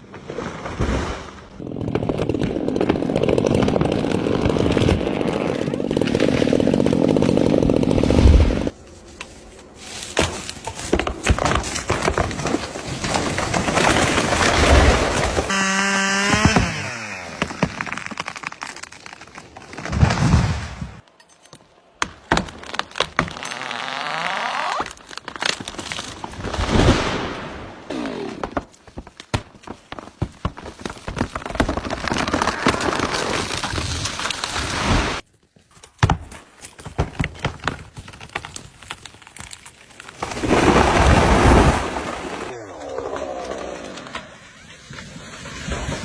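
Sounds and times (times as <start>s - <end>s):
wood cracking and snapping: 1.6s - 9.3s, 9.9s - 21.1s, 22.0s - 27.3s, 28.2s - 44.5s
trees crashing down with thuds: 10.0s - 21.0s, 22.0s - 35.2s, 36.0s - 46.0s.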